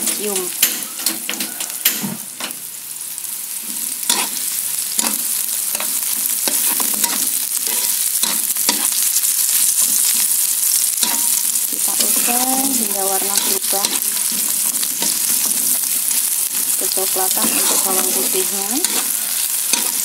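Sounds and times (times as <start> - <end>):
food sizzling in hot oil: 0.0 - 20.0
metal spatula scraping a pan: 3.9 - 10.1, 10.9 - 20.0.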